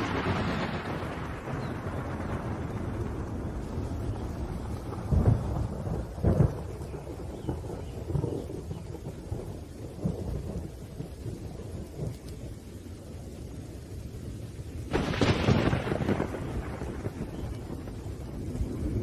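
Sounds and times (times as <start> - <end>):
rolling thunder: 0.0 - 19.0
steady rain: 0.0 - 19.0.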